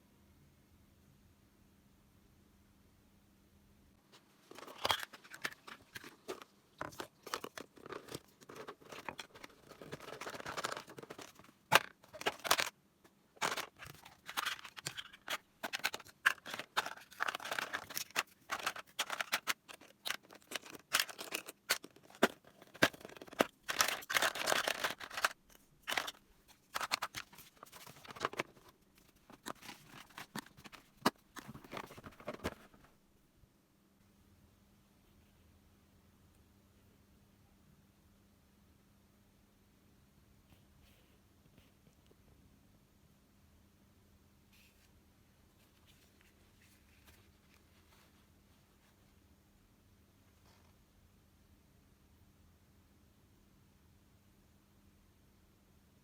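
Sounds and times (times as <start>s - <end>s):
crinkly wrapping rustling: 4.2s - 33.0s
plastic toy pieces clicking: 13.4s - 28.4s.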